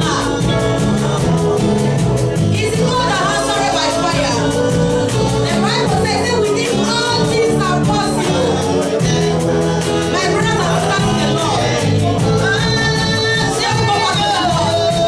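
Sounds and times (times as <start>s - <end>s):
band playing worship song: 0.0s - 15.0s
person singing: 0.0s - 15.0s
steady percussion beat: 0.0s - 15.0s.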